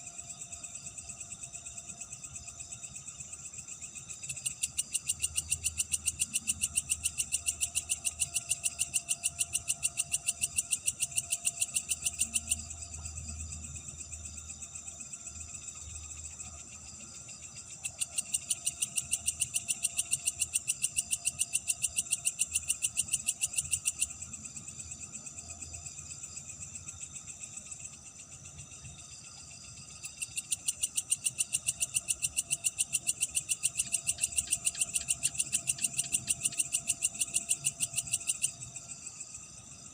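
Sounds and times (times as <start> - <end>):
insect pulsing chirp: 0.0 - 39.9
insects trilling: 0.0 - 39.9.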